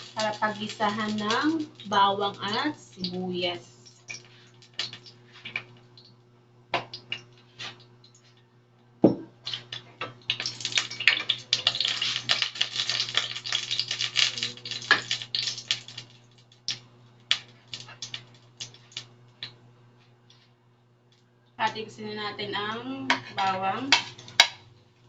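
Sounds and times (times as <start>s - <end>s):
oil crackling in hot pan: 0.0s - 8.2s, 9.4s - 19.6s, 23.9s - 24.7s
knock: 9.0s - 9.3s.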